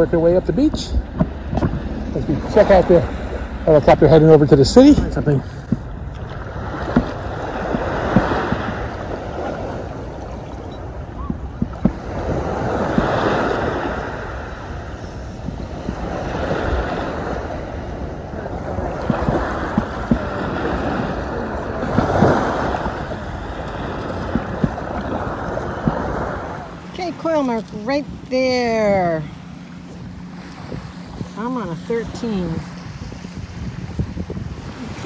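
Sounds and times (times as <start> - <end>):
wind rumbling on the microphone: 0.0 - 35.0
surf washing up the beach: 6.3 - 27.6.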